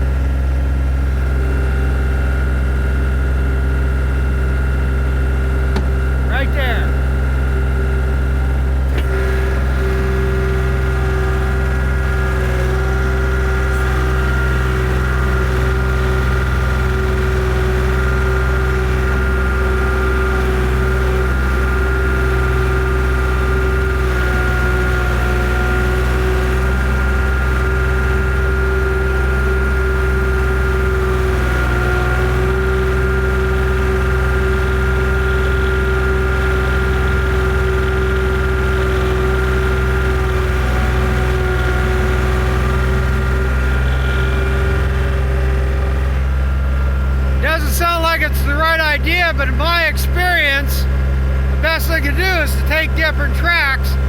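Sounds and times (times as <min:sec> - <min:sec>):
skid steer engine running: 0:00.0 - 0:54.0.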